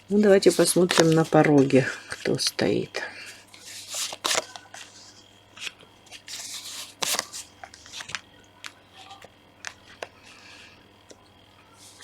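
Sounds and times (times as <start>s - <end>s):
cards sliding: 3.5s - 8.2s.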